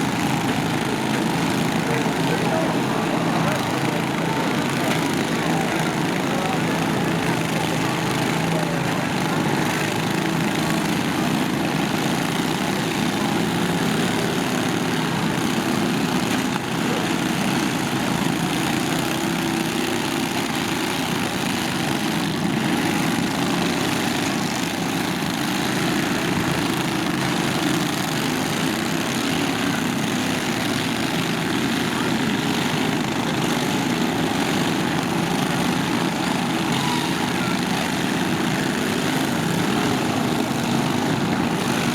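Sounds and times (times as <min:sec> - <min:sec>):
lawn tractor engines running: 0:00.0 - 0:41.9.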